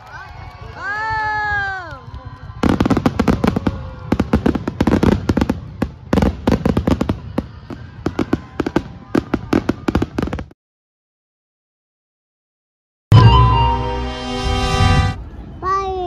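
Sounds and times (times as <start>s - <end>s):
fireworks bangs and crackles: 1.0s - 10.6s.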